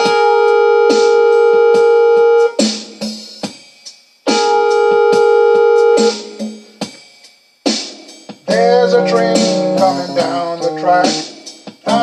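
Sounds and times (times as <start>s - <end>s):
synth chord: 4.3s - 6.5s, 8.5s - 10.3s
sharp drum hits: 7.7s - 10.4s.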